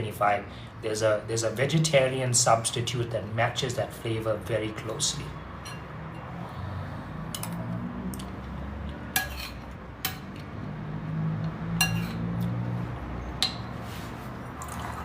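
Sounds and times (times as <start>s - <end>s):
cutlery clinking on a plate: 9.2s - 10.5s, 11.8s - 12.3s.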